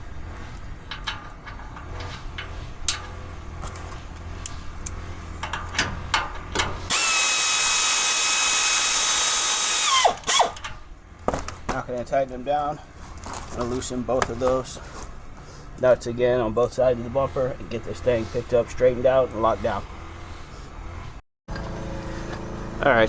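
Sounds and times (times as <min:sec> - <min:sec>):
bolts and washers clinking: 0:00.4 - 0:12.4
power drill whining: 0:06.9 - 0:10.7.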